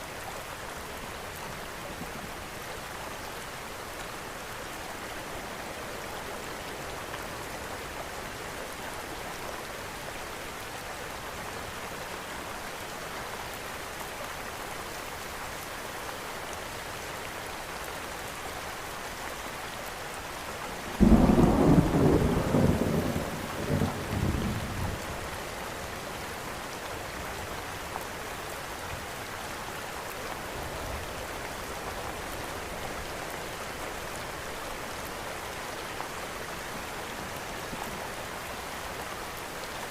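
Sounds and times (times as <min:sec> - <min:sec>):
steady rain: 0:00.0 - 0:39.9
rolling thunderclap: 0:21.0 - 0:24.7.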